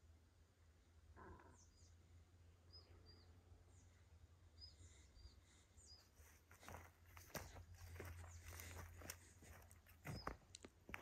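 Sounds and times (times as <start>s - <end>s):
faint high bird chirps: 1.2s - 6.8s, 9.8s - 10.6s
footsteps rustling on forest floor: 6.0s - 11.0s.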